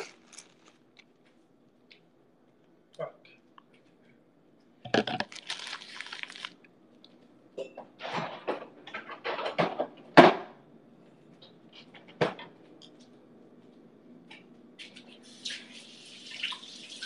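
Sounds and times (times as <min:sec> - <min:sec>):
kitchen objects clattering: 0:07.6 - 0:10.3.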